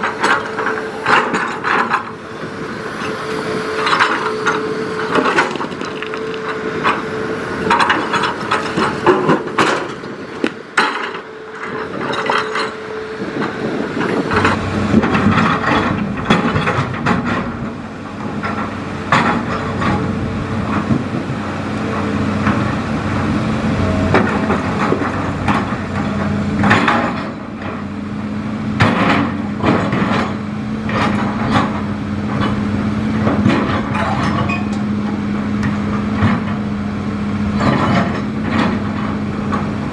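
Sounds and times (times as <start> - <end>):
excavator engine running: 0.0 - 39.9
machine knocking and clattering: 7.6 - 12.8, 13.4 - 21.1, 24.0 - 27.8, 28.8 - 36.7, 37.5 - 39.7.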